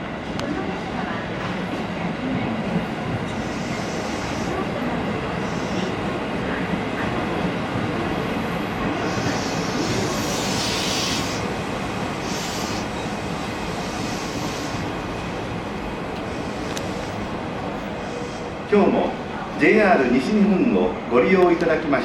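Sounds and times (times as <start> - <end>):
train rumbling: 0.0 - 22.0
short hissing: 8.8 - 15.0.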